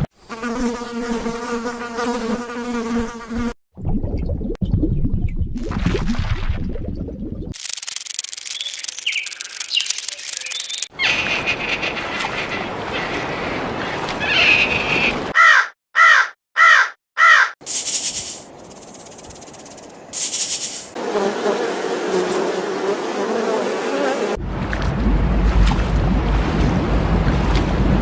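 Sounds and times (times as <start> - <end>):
bird calling loudly: 14.2 - 17.6
steady hiss: 17.6 - 19.0.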